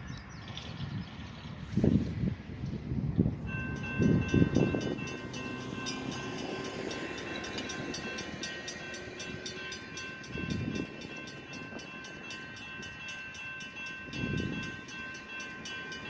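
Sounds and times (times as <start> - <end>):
freight train rolling past: 0.4 - 16.0
high-pitched ringing tones: 3.5 - 16.0.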